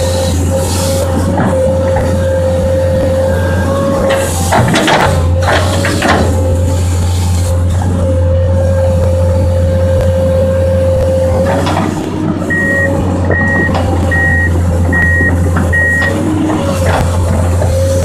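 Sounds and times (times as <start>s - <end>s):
excavator diesel engine whining: 0.0s - 18.0s
travel alarm beeps: 12.5s - 16.2s.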